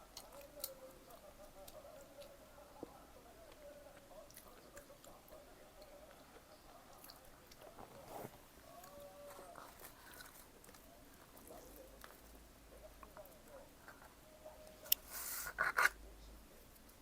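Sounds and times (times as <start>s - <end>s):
person chewing: 6.9s - 12.4s.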